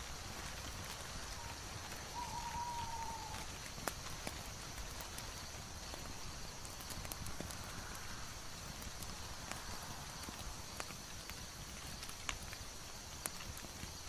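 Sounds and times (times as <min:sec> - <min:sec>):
wood fire hissing and crackling: 0:00.0 - 0:14.0
faint falling whistle: 0:02.1 - 0:03.4.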